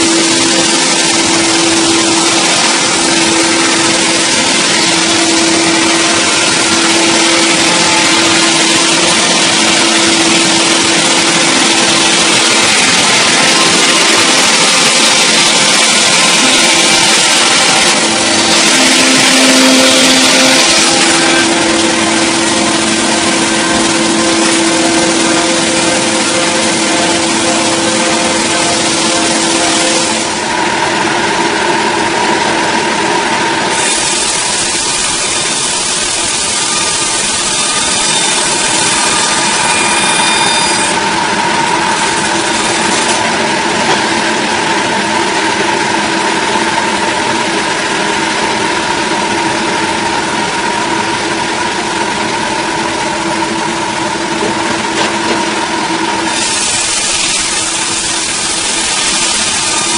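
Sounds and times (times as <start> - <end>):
engine running with whine: 0.0 - 59.9.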